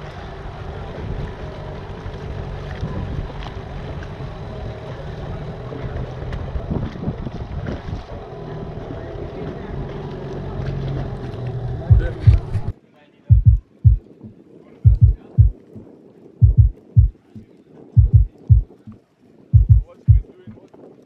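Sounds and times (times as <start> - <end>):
boat engine hum: 0.0 - 15.5
wind buffeting microphone: 0.0 - 21.0.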